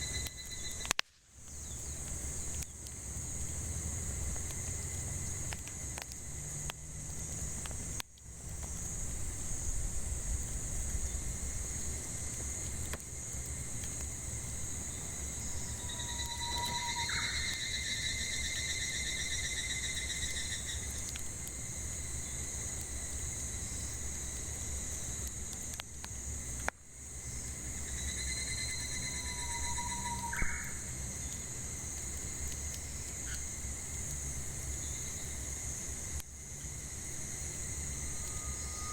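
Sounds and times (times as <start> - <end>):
cicadas chorus: 0.0 - 38.9
wood fire crackling: 0.0 - 38.9
bird calling: 15.8 - 17.6, 29.1 - 30.8.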